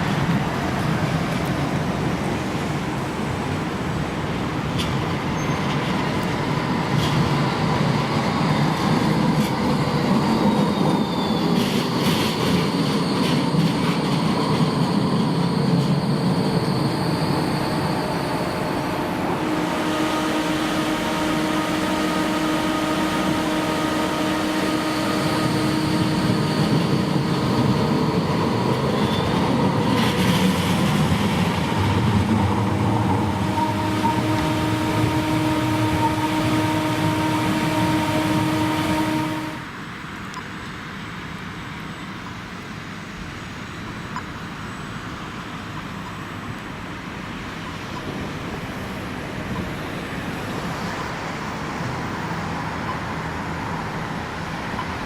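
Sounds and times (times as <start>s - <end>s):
tram wheels rumbling: 0.0s - 55.0s
electric hum: 18.2s - 29.0s.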